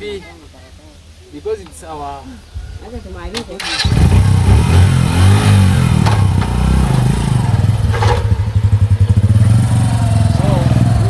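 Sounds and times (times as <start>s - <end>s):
motorcycle engine idling: 3.6s - 11.0s.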